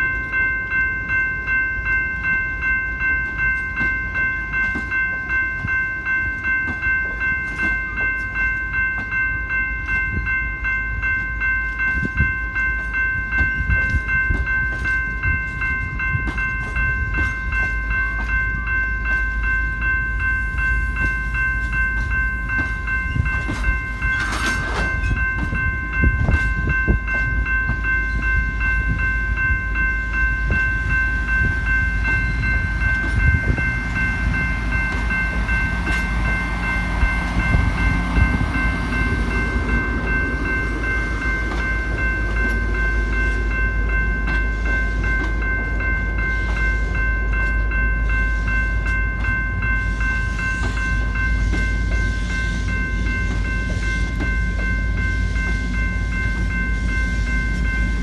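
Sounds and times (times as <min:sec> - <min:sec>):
high-pitched wheel ringing: 0:00.0 - 0:58.0
train rumbling slowly: 0:00.0 - 0:58.0
wheels clicking over rail joints: 0:21.0 - 0:29.0.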